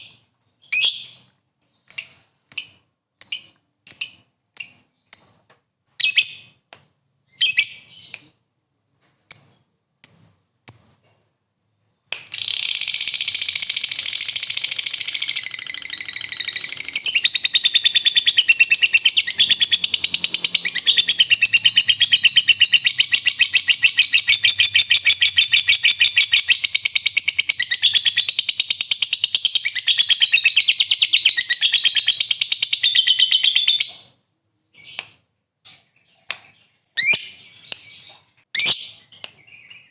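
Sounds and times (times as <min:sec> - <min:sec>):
lovebird chirping and chattering trill: 0:00.0 - 0:05.4, 0:12.3 - 0:34.1, 0:35.7 - 0:39.9.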